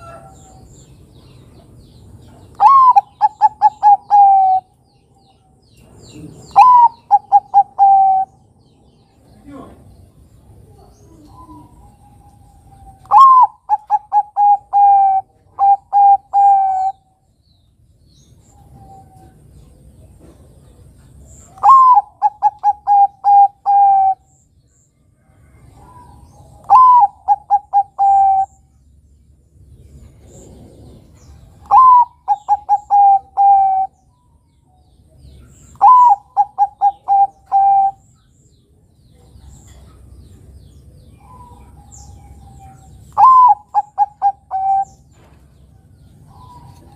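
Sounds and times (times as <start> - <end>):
dove cooing: 2.5 - 4.7, 6.2 - 8.4, 10.6 - 17.0, 21.5 - 24.3, 25.6 - 28.6, 30.5 - 34.0, 35.4 - 38.0, 41.2 - 46.9.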